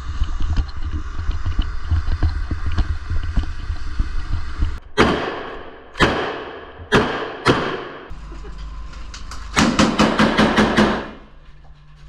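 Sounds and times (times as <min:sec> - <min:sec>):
low rumble: 0:00.0 - 0:05.0
echoing gunshots: 0:04.9 - 0:08.1.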